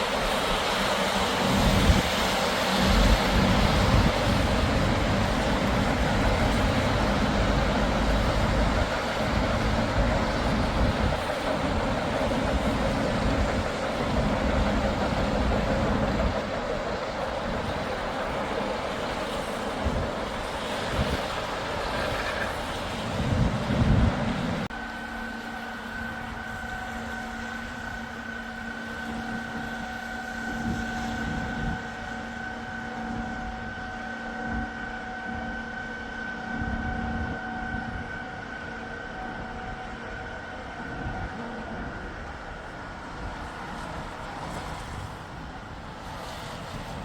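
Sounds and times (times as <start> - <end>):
wind buffeting microphone: 0.0 - 47.0.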